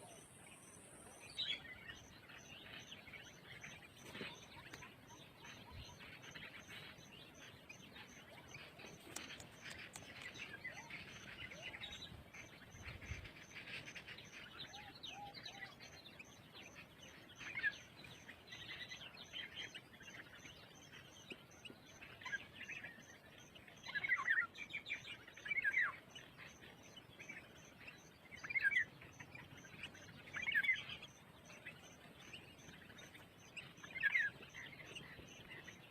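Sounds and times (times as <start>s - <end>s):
birds chirping: 0.0s - 35.9s.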